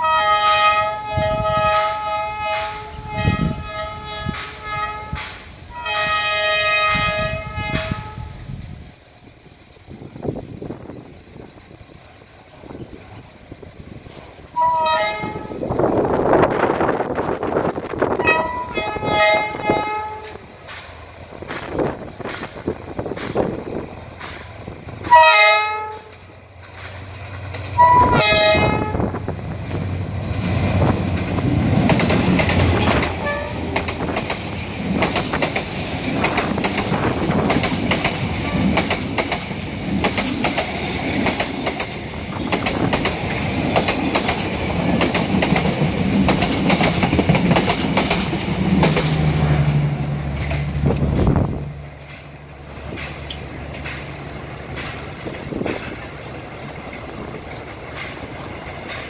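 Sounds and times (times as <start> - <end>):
train horn blasts: 0.0 - 8.4, 14.5 - 15.7, 18.1 - 20.4, 25.0 - 26.2, 27.8 - 29.2, 32.6 - 33.9
diesel locomotive passing: 0.0 - 59.0
train wheels clattering on rails: 4.0 - 6.2, 6.9 - 59.0.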